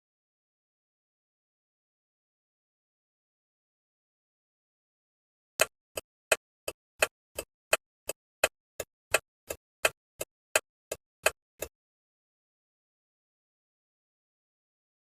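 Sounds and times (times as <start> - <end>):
turn signal indicator ticking: 5.6 - 11.7.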